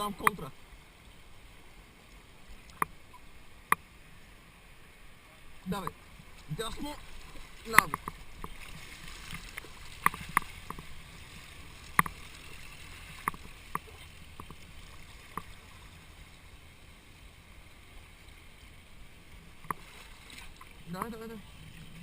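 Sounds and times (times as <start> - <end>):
river water rushing: 0.0 - 22.0
paddle strokes in water: 5.3 - 22.0
paddles knocking against kayak: 5.8 - 11.2, 11.9 - 15.6.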